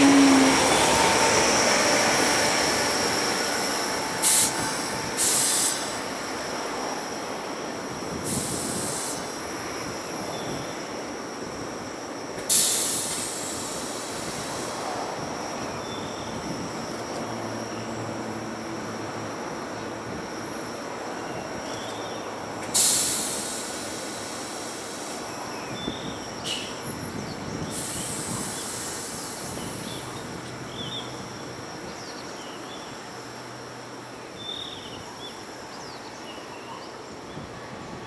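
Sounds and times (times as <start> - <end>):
electric train running: 0.0 - 34.4
short sharp hisses: 22.8 - 23.8.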